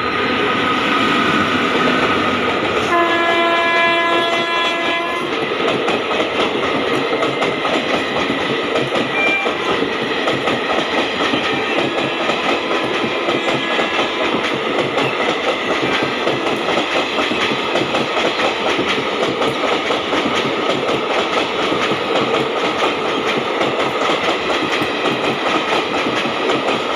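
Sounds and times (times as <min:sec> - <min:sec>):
train coaches clattering on rails: 0:00.0 - 0:26.9
locomotive horn blowing: 0:02.9 - 0:05.3.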